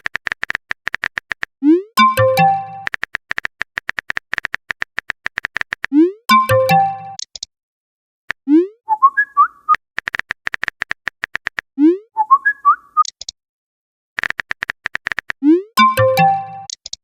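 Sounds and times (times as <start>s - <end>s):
keyboard typing clicks: 0.0s - 7.5s, 10.0s - 11.6s, 14.2s - 17.0s
rising whistle-like message tones: 8.5s - 9.8s, 11.8s - 13.0s.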